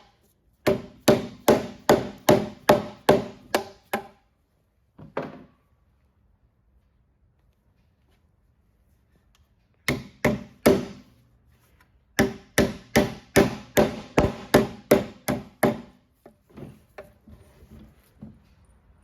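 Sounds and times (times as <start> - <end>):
hammer hitting nails into wood: 0.6 - 4.2, 9.8 - 11.1, 12.2 - 16.0.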